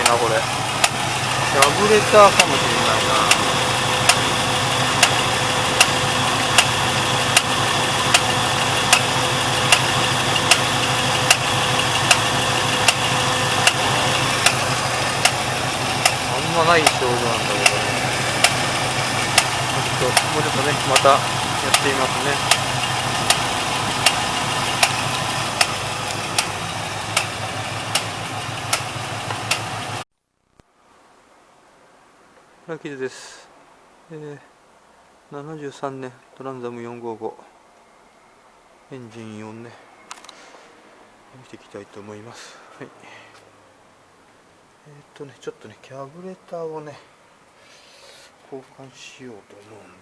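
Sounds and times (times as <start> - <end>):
sharp engine knock: 0.0 - 30.0
car engine idling: 0.0 - 30.1.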